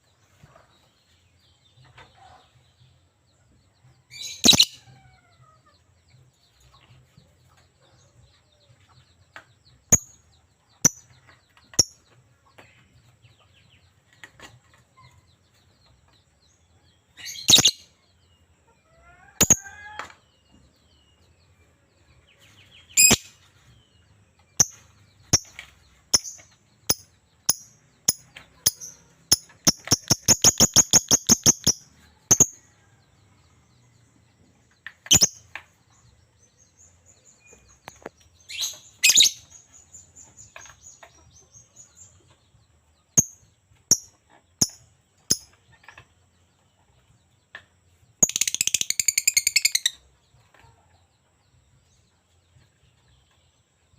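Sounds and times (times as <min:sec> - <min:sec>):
lovebird chirping: 0:04.2 - 0:04.9, 0:17.2 - 0:18.0, 0:22.8 - 0:23.4, 0:24.5 - 0:32.6, 0:35.0 - 0:35.6, 0:37.3 - 0:39.6, 0:48.2 - 0:50.0.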